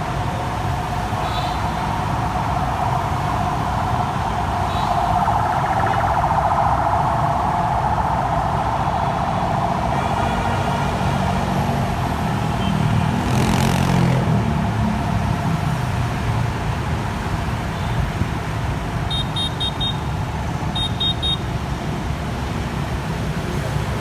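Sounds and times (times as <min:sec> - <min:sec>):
high electronic beeps: 0:00.9 - 0:07.6.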